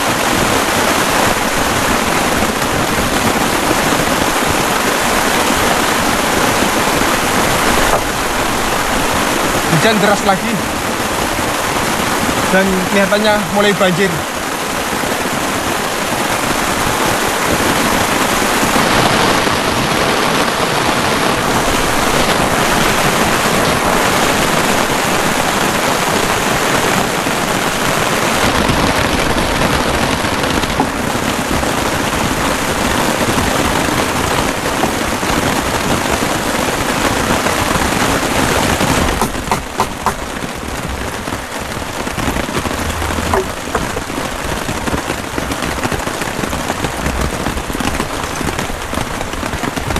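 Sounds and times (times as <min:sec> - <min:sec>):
heavy rain falling: 0:00.0 - 0:49.9
single raindrops: 0:38.9 - 0:45.2.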